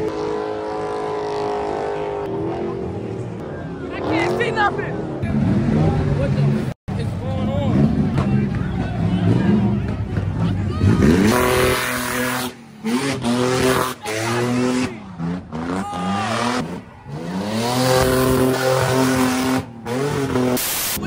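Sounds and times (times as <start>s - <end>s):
tires squealing: 7.4s - 21.0s
car engine revving hard: 10.8s - 20.8s.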